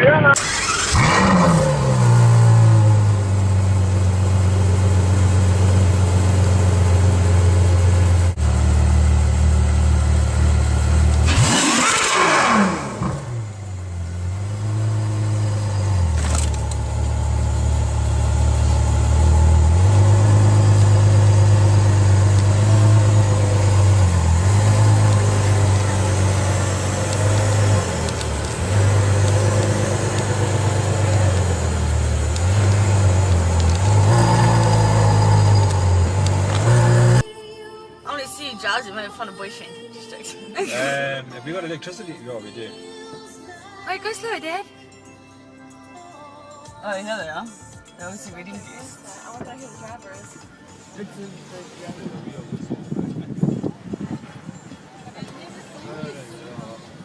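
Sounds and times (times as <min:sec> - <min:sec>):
car engine revving: 0:00.0 - 0:37.2.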